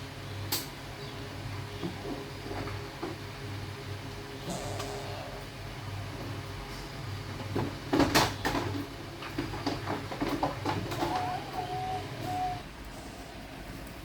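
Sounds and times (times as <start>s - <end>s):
low steady hum: 0.0s - 7.7s
dove cooing: 4.4s - 5.6s, 10.7s - 13.5s.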